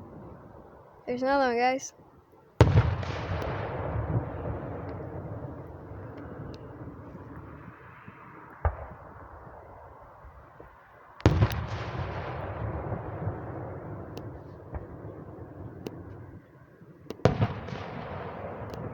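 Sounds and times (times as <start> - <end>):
fireworks bangs: 2.6 - 9.7, 10.6 - 16.4, 17.1 - 18.9.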